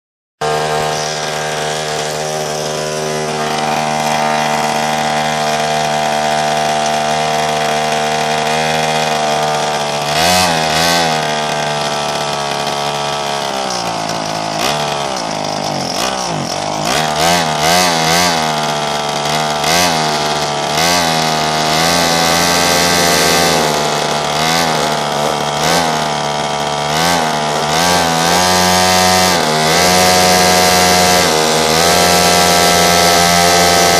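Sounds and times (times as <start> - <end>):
small two-stroke engine revving: 0.4 - 33.9.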